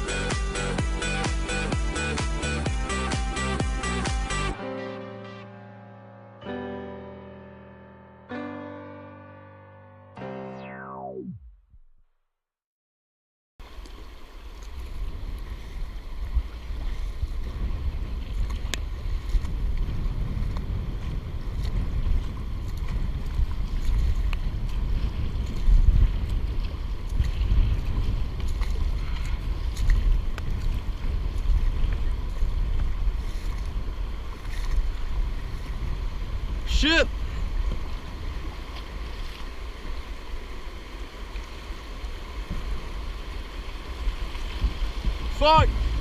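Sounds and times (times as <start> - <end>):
wind rumble on microphone: 13.6 - 46.0
river water rushing: 34.0 - 46.0.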